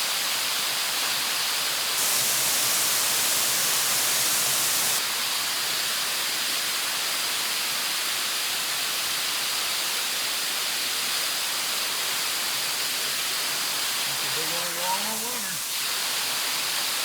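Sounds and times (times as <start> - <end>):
bright water hiss: 0.0 - 17.0
waterfall rushing: 2.0 - 5.2, 13.4 - 16.7.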